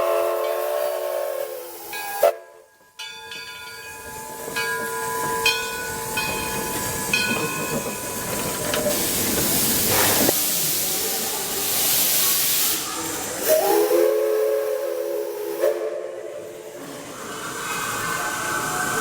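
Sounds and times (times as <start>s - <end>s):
steam hissing: 4.1s - 19.0s.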